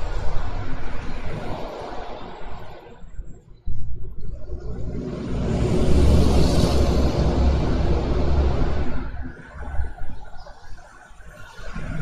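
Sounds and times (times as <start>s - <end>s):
vehicle passing close by: 4.6s - 9.2s.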